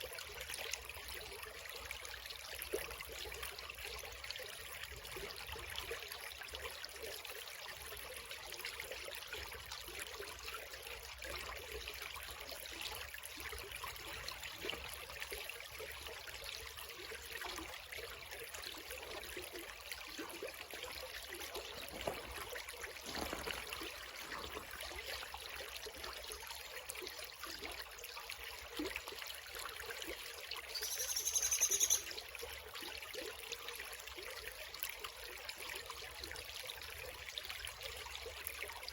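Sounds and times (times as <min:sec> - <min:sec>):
creek trickling over stones: 0:00.0 - 0:38.9
bird high call: 0:30.8 - 0:32.2.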